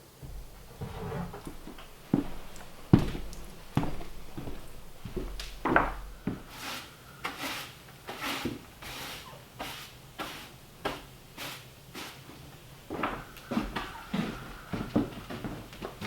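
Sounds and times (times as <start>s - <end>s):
knocking on timber: 0.2s - 6.5s
hand tool rasping on wood: 6.2s - 12.2s.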